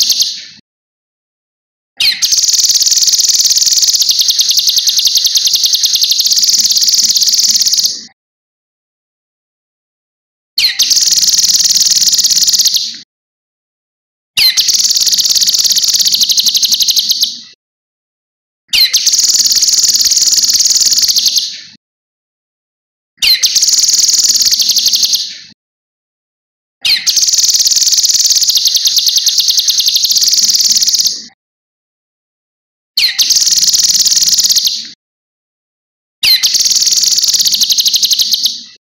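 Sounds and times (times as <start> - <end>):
bird singing high-pitched phrases: 0.0 - 0.6, 2.0 - 8.1, 10.6 - 13.0, 14.4 - 17.5, 18.7 - 21.7, 23.2 - 25.5, 26.8 - 31.3, 33.0 - 35.0, 36.2 - 38.8.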